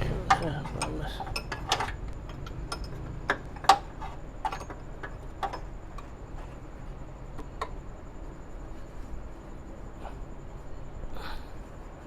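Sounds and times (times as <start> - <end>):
metal tools clinking: 0.0 - 6.0
low steady hum: 0.0 - 12.0.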